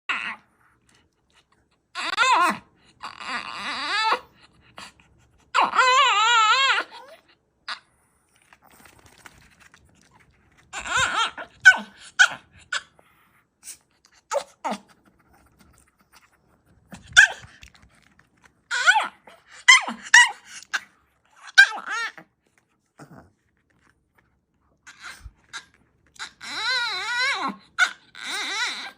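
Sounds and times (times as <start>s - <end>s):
dog whining and yowling: 0.1s - 0.7s, 1.9s - 7.9s, 10.1s - 15.8s, 16.9s - 17.8s, 18.6s - 22.3s, 24.8s - 28.9s
dog yelping: 5.6s - 7.8s, 10.7s - 12.9s, 17.0s - 17.6s, 18.7s - 22.2s, 24.9s - 28.9s.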